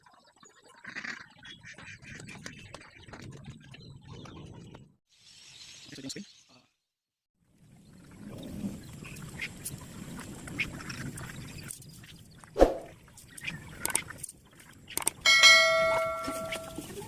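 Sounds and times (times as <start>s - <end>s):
metal object ringing like a bell: 15.2s - 17.0s.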